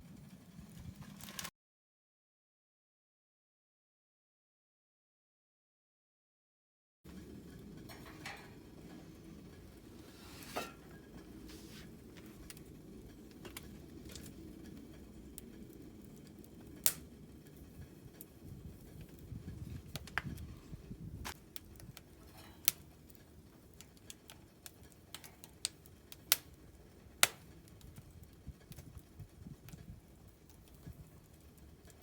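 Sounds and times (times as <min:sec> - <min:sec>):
low steady rumble: 0:07.1 - 0:22.4.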